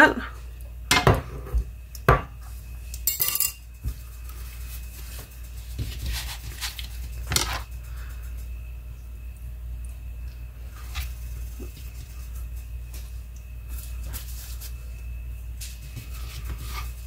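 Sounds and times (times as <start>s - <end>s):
low steady hum: 0.0s - 17.0s
spoon clinking on glass bowl: 3.1s - 3.6s.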